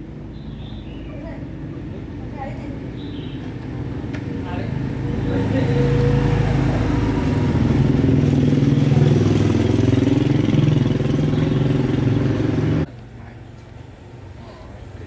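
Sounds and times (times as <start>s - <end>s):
motor running loudly: 5.1s - 12.8s.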